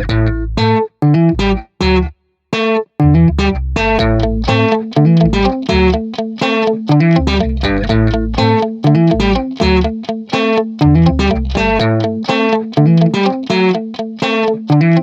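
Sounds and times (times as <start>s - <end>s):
bass line: 0.0s - 2.2s, 3.0s - 6.0s, 6.9s - 10.0s, 10.8s - 12.2s
plucked guitar instrumental: 0.0s - 15.0s.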